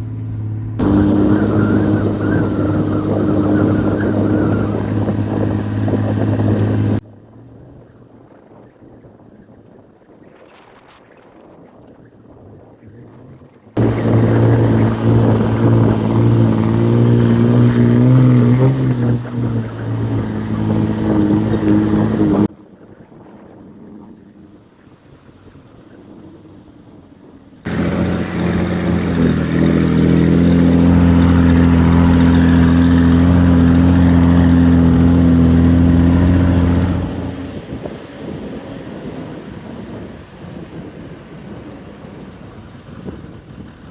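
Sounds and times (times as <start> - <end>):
wind noise: 0.0 - 7.0, 7.6 - 24.7, 25.4 - 43.9
pickup engine droning uphill: 0.0 - 7.1, 13.8 - 22.5, 27.7 - 40.8.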